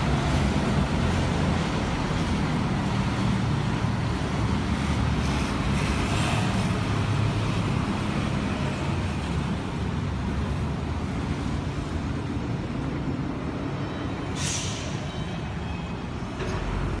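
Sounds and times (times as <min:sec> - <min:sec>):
motor vehicles rumbling: 0:00.0 - 0:17.0
short hiss: 0:14.4 - 0:15.0.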